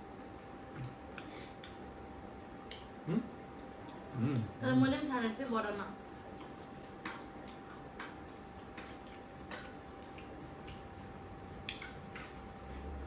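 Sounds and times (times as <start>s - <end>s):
faint steady hum: 0.0s - 13.0s
eating clicks and ticks: 5.4s - 12.5s.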